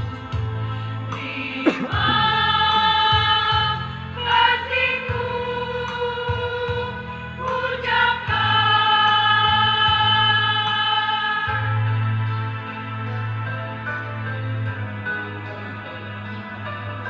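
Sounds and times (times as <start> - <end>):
choir singing in harmony: 1.3 - 9.5.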